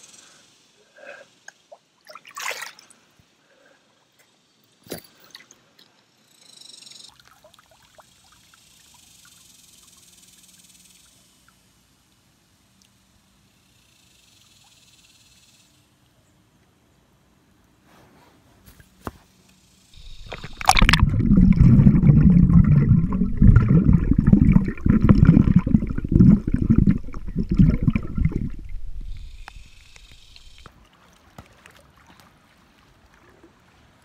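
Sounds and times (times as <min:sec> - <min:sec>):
water sloshing and splashing: 0:02.0 - 0:02.9, 0:20.0 - 0:34.0.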